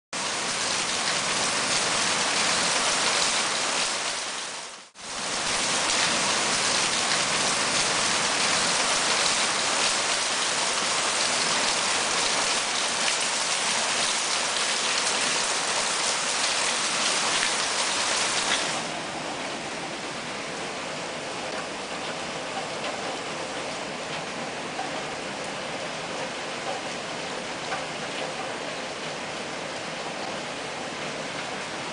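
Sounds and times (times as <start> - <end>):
heavy rain pouring: 0.2 - 31.9.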